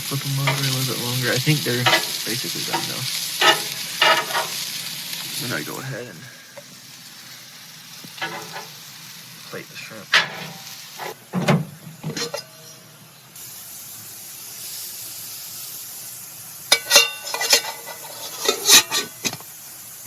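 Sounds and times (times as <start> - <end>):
food sizzling in a pan: 0.0 - 20.0
utensil clinking against metal pan: 16.7 - 19.2.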